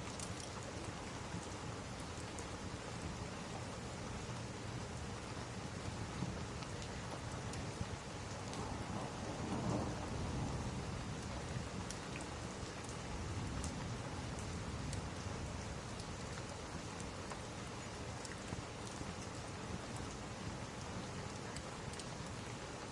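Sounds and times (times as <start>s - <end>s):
steady rain: 0.0s - 22.9s
low roll of thunder: 8.4s - 12.0s.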